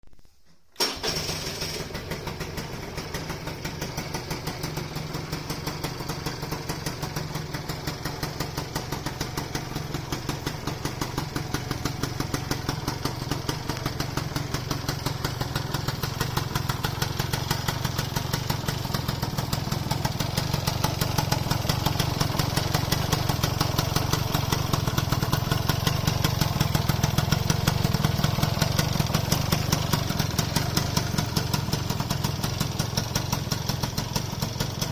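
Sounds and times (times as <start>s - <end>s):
scooter engine starting and idling: 0.5s - 34.9s.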